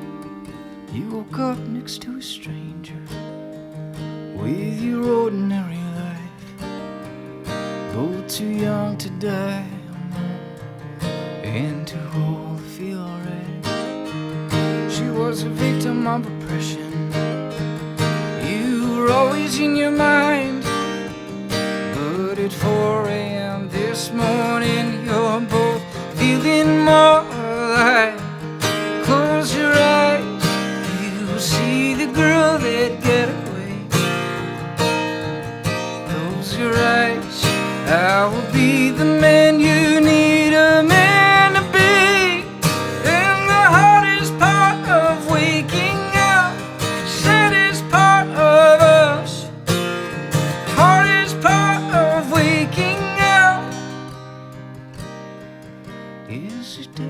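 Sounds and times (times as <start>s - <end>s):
strummed acoustic guitar: 0.0s - 57.0s.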